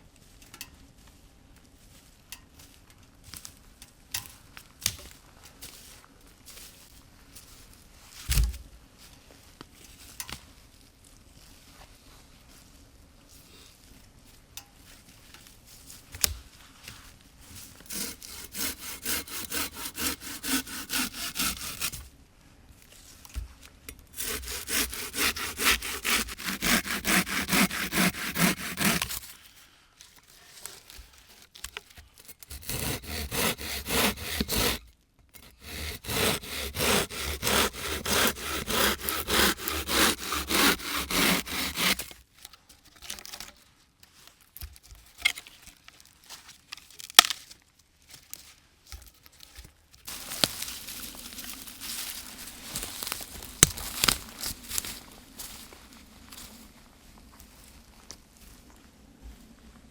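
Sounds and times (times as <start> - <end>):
hand saw cutting wood: 17.7 - 22.1, 24.1 - 29.4, 32.2 - 42.2, 50.1 - 54.9.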